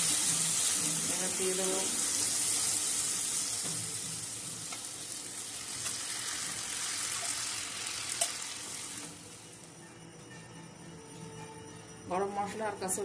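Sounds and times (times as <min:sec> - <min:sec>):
food sizzling in a pan: 0:00.0 - 0:09.7.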